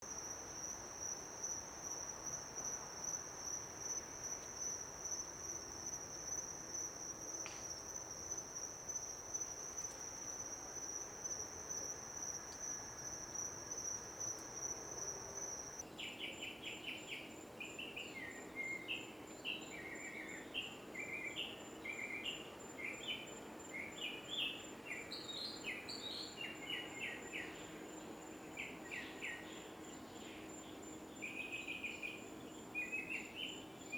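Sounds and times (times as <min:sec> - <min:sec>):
insects trilling: 0:00.0 - 0:33.9
songbird chirping: 0:11.4 - 0:33.9.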